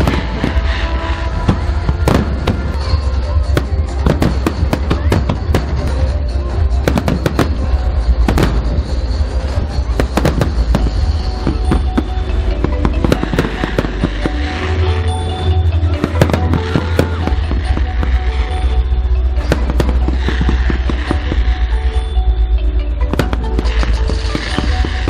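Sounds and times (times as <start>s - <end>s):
background music: 0.0s - 25.0s
deep rumble: 0.0s - 25.0s
fireworks bursting and crackling: 0.0s - 25.0s.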